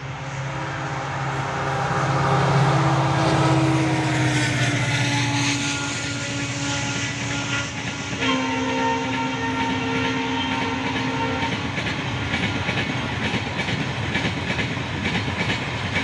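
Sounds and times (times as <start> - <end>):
diesel engine drone: 0.0 - 6.6
wheel and rail noise: 0.0 - 16.0.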